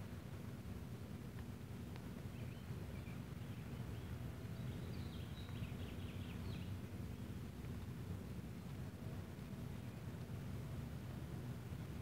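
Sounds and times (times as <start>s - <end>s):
faint bird chirps: 2.3s - 7.3s.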